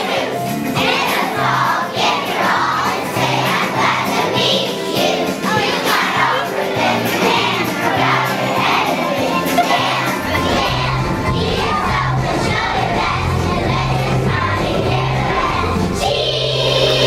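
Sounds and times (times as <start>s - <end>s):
backing music track: 0.0s - 17.0s
children singing together: 0.0s - 17.0s.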